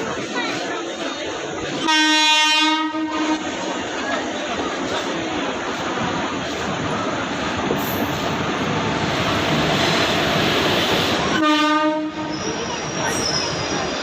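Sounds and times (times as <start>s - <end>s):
train wheels rushing on rail: 0.0s - 14.0s
train horn blast: 1.8s - 3.4s, 11.4s - 12.3s.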